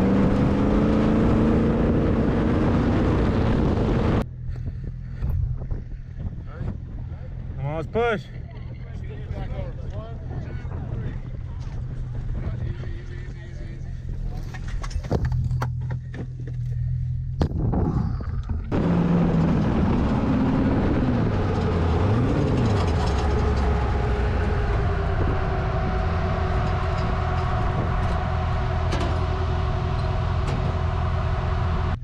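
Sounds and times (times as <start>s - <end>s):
off-road vehicle engine revving: 0.0s - 5.6s, 6.4s - 32.0s.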